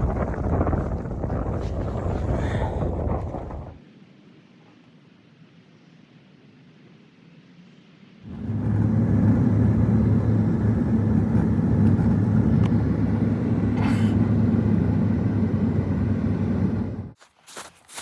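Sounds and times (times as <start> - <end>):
loud low rumble with hum: 0.0 - 3.8, 8.3 - 17.2.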